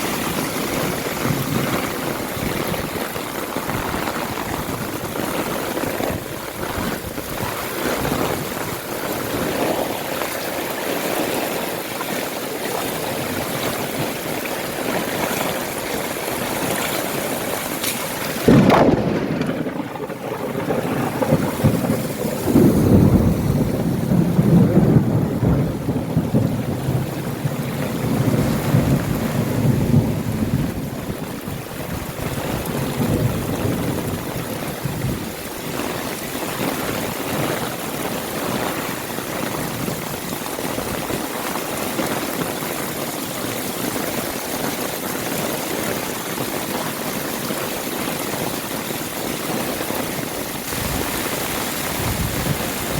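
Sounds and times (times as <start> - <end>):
heavy rain pouring: 0.0 - 52.9
rolling thunder rumble: 13.2 - 41.3, 50.2 - 52.9.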